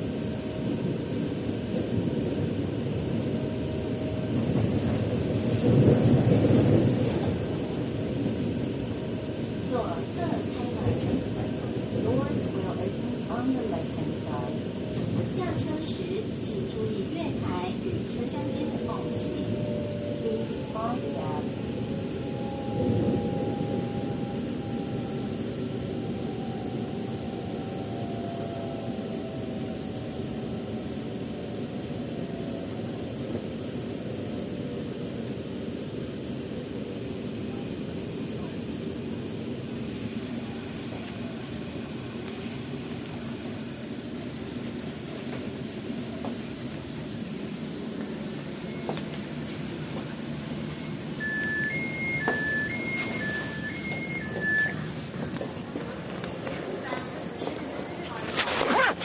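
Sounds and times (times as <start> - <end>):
train wheels rumbling: 0.0 - 29.7
faint whine falling in pitch: 18.1 - 33.5, 48.2 - 55.6.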